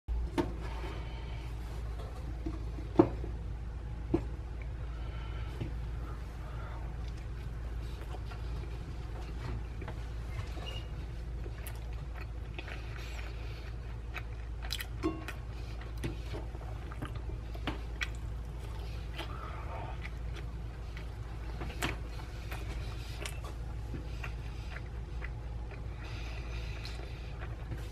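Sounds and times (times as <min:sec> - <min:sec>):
steady low hum: 0:00.1 - 0:27.9
person chewing: 0:06.1 - 0:27.9.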